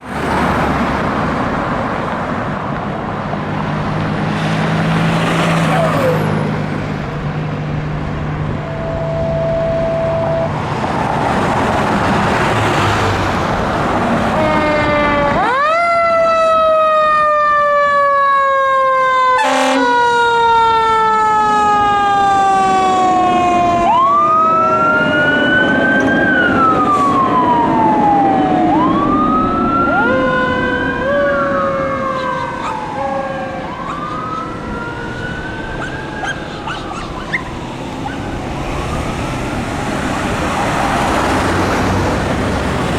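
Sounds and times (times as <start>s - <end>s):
truck engine: 0.0s - 16.9s, 19.4s - 42.9s
electronic siren wailing: 8.5s - 10.6s, 14.4s - 39.3s.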